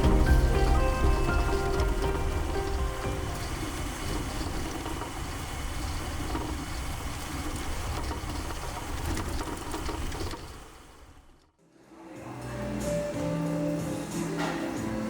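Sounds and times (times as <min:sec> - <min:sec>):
vehicle engine and road rumble: 0:00.0 - 0:11.5.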